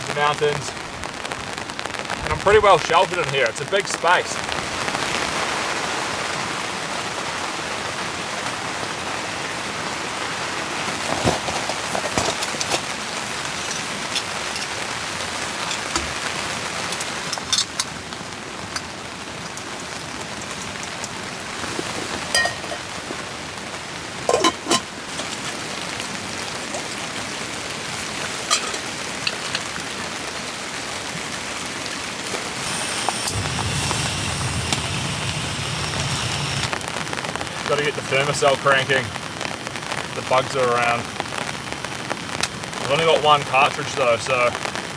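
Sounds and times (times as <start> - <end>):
rain on tent fabric: 0.0 - 44.9
low hum with high tones: 32.7 - 36.7.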